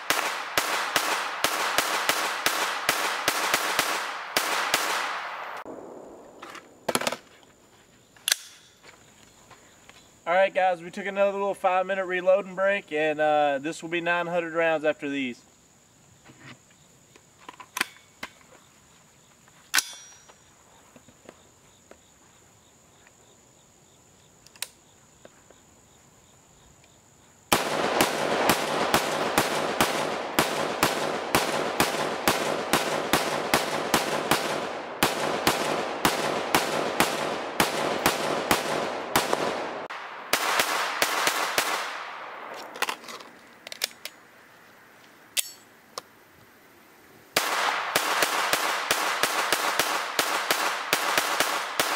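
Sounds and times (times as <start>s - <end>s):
rapid semi-automatic rifle fire: 0.0s - 5.6s, 27.5s - 42.4s, 47.4s - 51.9s
rifle handling clicks: 8.2s - 8.8s, 24.4s - 24.8s, 42.5s - 44.2s, 45.3s - 46.1s.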